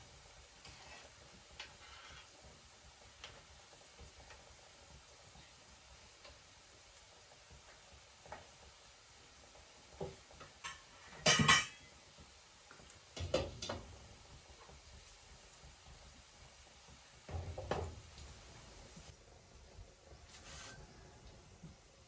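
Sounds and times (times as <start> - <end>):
dishes and utensils clattering: 10.4 - 11.9.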